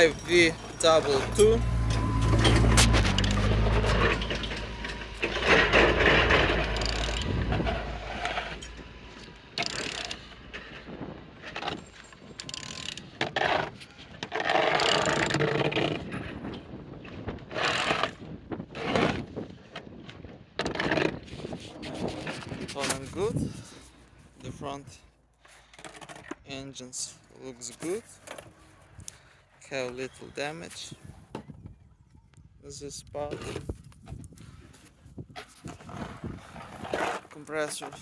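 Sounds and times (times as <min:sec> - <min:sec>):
mechanical rasping and scraping: 0:00.0 - 0:16.5, 0:35.2 - 0:38.0
engine turned over by hand: 0:00.0 - 0:16.7
ratchet clicks: 0:06.4 - 0:10.3, 0:11.6 - 0:13.0.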